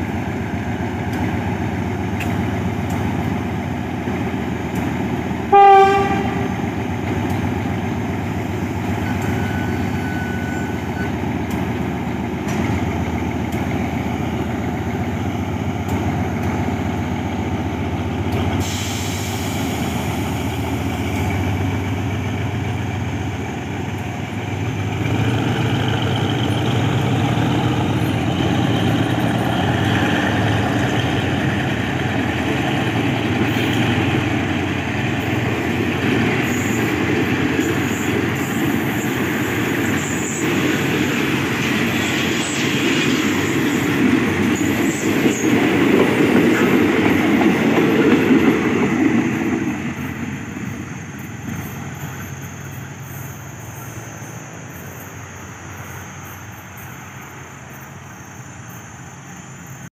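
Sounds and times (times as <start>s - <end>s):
train wheels running over rails: 0.0s - 59.9s.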